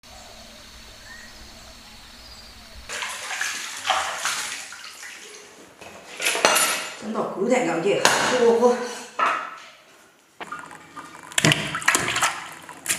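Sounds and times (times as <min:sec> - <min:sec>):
low hum: 0:00.0 - 0:02.9.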